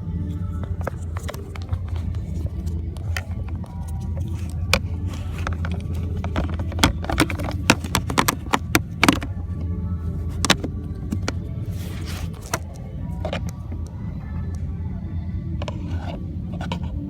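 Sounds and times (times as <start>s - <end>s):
steady low hum: 0.0s - 17.0s
plastic clicks and knocks: 4.7s - 9.3s.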